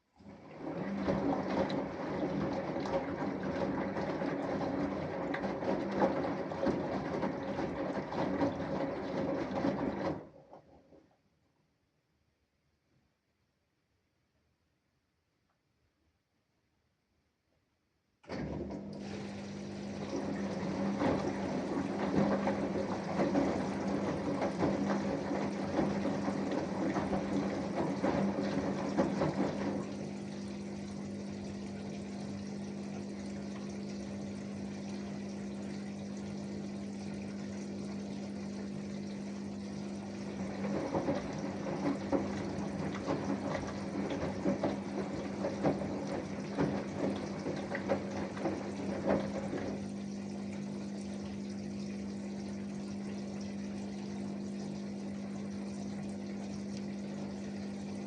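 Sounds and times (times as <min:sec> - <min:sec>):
washing machine hum: 0:00.0 - 0:12.9, 0:17.5 - 0:58.0
water splashing: 0:18.3 - 0:58.0.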